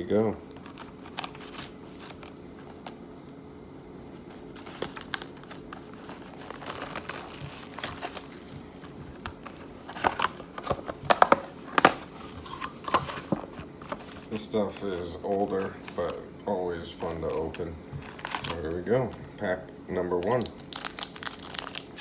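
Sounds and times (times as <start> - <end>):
plastic wrapping crinkling and tearing: 0.5 - 3.0, 4.6 - 12.7, 17.2 - 18.8, 20.2 - 22.0.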